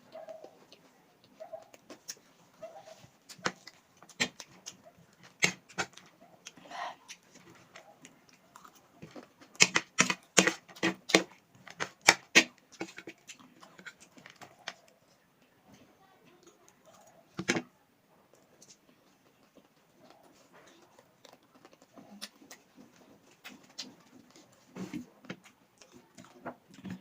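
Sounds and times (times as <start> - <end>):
eating crunches and clicks: 3.1 - 15.0, 18.3 - 27.0.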